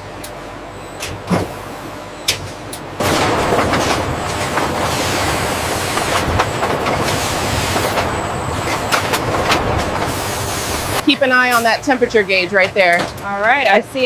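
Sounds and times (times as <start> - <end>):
machinery clattering: 3.0 - 13.6.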